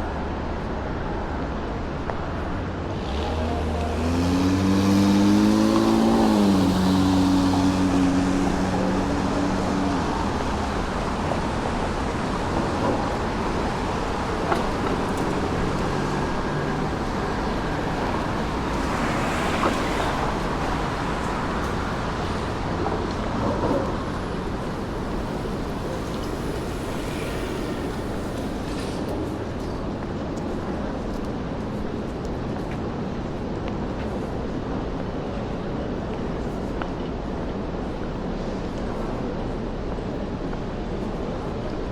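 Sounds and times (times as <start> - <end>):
passing traffic: 0.0 - 41.9
vehicle engine humming: 1.4 - 35.0.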